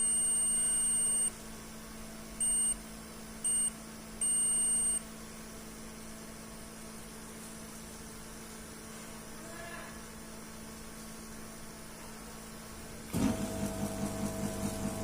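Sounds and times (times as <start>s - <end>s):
low electrical hum: 0.0s - 15.0s
electronic beeper: 2.4s - 2.8s.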